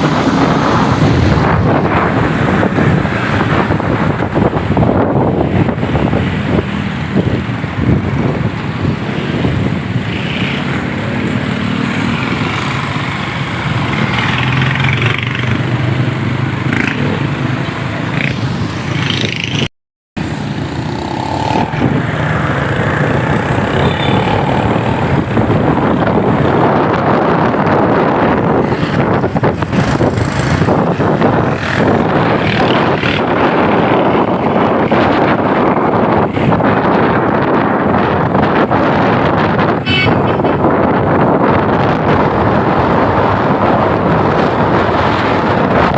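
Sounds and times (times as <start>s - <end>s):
wind buffeting microphone: 0.0s - 45.9s
motorcycle engine running: 19.0s - 26.7s.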